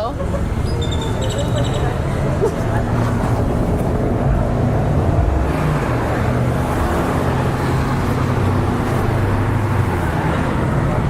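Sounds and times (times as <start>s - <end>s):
road traffic noise: 0.0s - 11.0s
vehicle engines humming: 0.0s - 11.0s.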